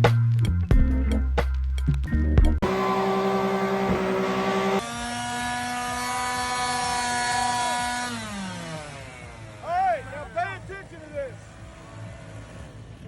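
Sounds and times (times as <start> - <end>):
car engine revving high: 2.6 - 13.0.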